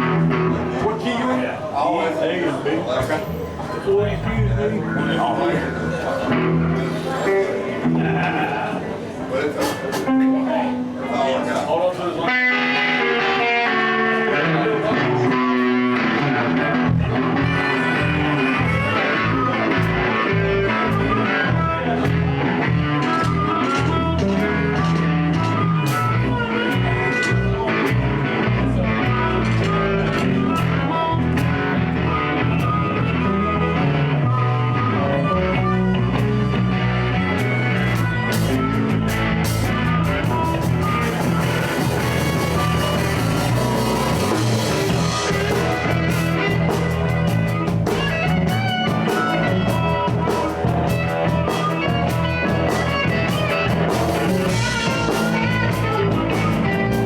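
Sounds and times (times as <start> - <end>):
live blues band playing: 0.0 - 57.0.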